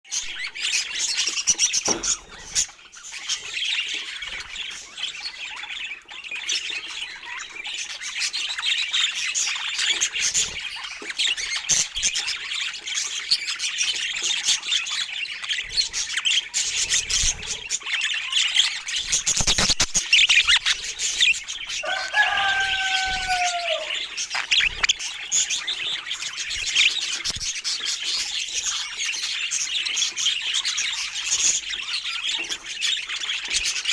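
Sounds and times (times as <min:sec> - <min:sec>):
budgerigars chattering: 0:00.1 - 0:33.9
low bird call: 0:21.8 - 0:24.6.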